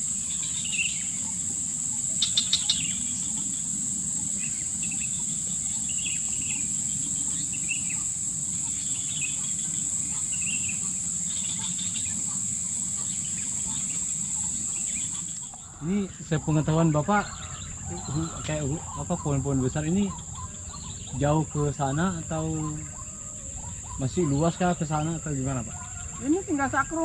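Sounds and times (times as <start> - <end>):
bird chirps: 0.0 - 27.0
insects droning: 0.0 - 27.0.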